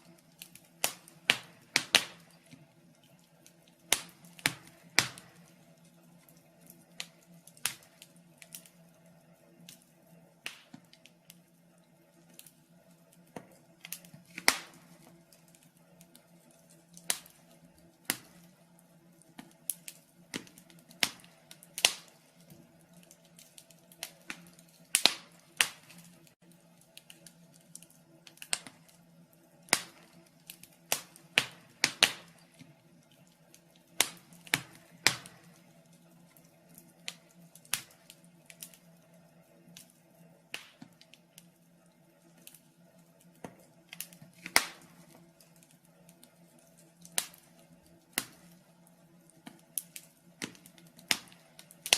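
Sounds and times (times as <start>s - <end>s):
faint steady hum: 0.0s - 51.9s
wood fire crackling: 0.0s - 51.9s.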